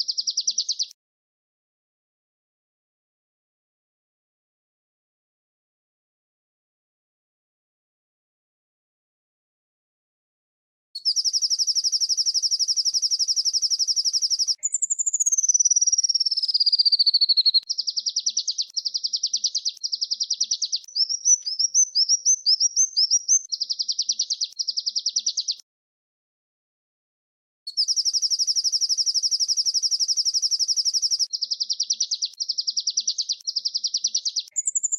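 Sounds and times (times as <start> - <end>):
songbirds trilling: 11.1 - 25.6, 27.7 - 34.9.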